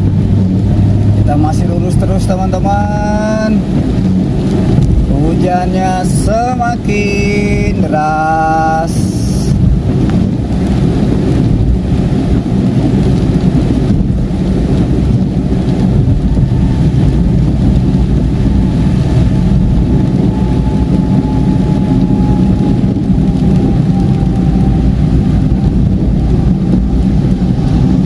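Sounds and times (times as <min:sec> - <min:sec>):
rain on car: 0:00.0 - 0:28.0
road and tyre rumble: 0:00.0 - 0:28.0.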